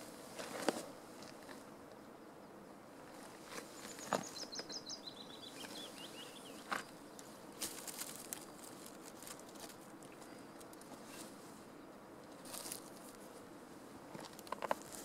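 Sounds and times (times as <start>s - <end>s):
open-air hiss: 0.0s - 15.0s
songbird singing: 1.8s - 13.0s.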